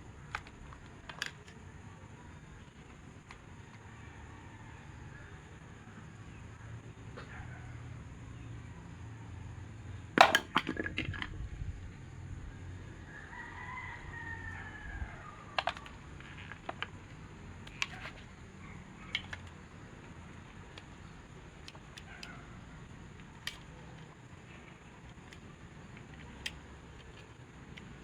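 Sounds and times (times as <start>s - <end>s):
rooster crowing: 3.6s - 6.2s, 13.0s - 16.2s.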